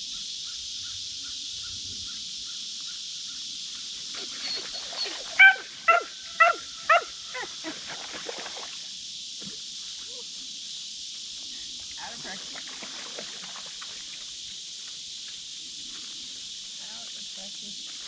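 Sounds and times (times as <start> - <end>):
night insects chorus: 0.0 - 18.0
animal barking: 4.2 - 7.8.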